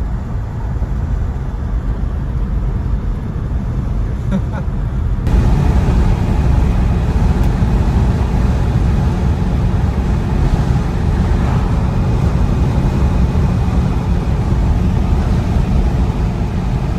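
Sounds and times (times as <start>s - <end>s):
car engine low rumble: 0.0s - 16.9s
road noise: 0.0s - 16.9s.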